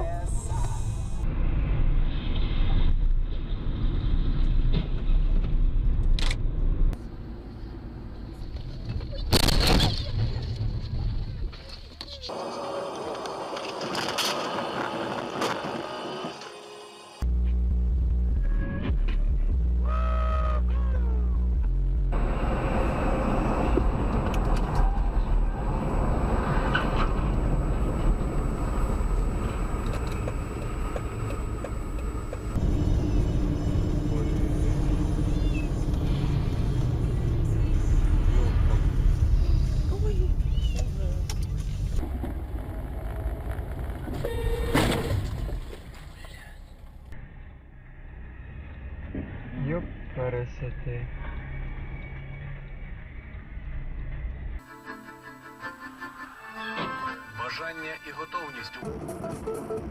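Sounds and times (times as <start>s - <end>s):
car road and engine rumble: 0.0s - 16.5s, 20.6s - 54.7s
low hum: 17.1s - 57.2s.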